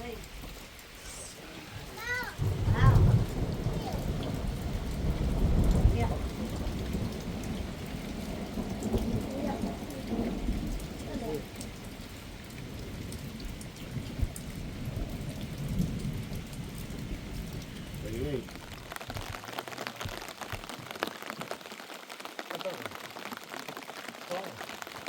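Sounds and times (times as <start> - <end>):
steady rain falling: 0.0 - 25.0
low rolls of thunder: 1.9 - 18.9.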